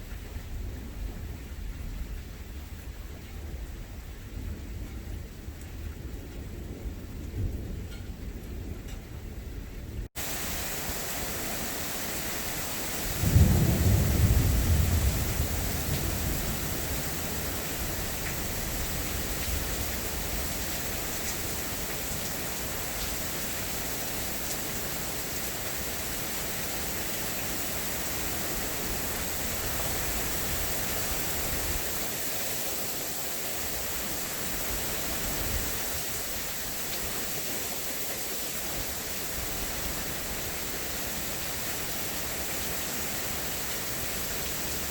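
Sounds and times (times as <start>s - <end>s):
steady rain: 0.0s - 44.9s
thunder clap rumbling: 0.4s - 21.6s.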